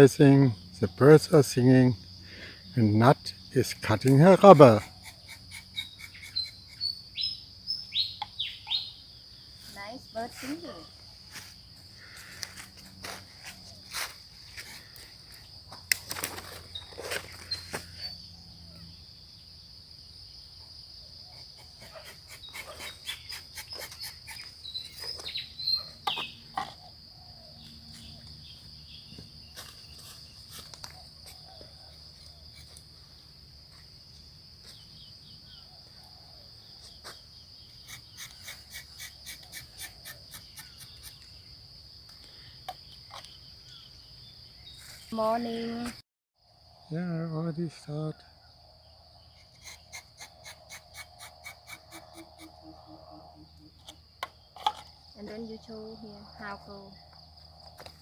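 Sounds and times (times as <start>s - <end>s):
insects trilling: 0.0s - 58.0s
bird chirps: 4.8s - 9.0s, 21.3s - 30.1s, 49.3s - 54.5s.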